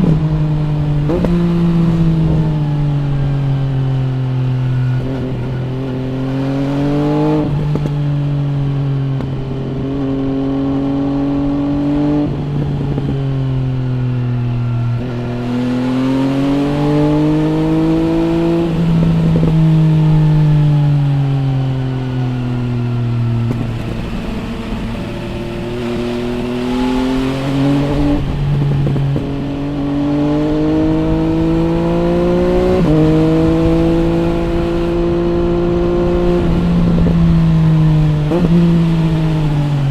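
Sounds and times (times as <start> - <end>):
gear changes: 0.0 - 39.9
motorcycle engine revving: 0.0 - 39.9.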